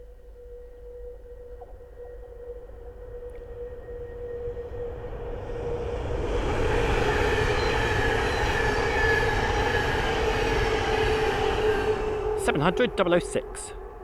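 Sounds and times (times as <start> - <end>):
electric train whine: 0.0 - 14.0
train wheels rushing on rails: 4.0 - 14.0.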